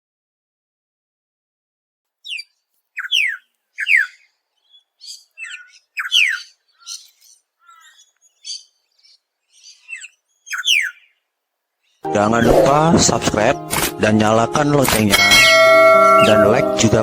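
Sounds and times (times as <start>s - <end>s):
soft high bird chattering: 2.2s - 11.2s
bird sharp downslurred calls: 2.2s - 12.5s.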